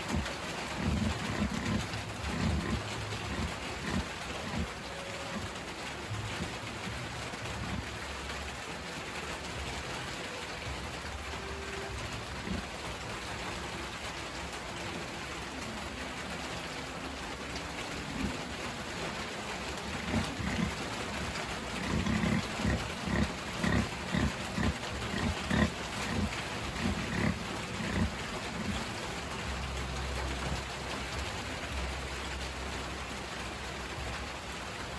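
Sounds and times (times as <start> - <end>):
pig grunting: 0.0 - 5.6, 6.2 - 8.1, 11.9 - 13.2, 16.6 - 29.2
steady hiss: 0.0 - 34.9.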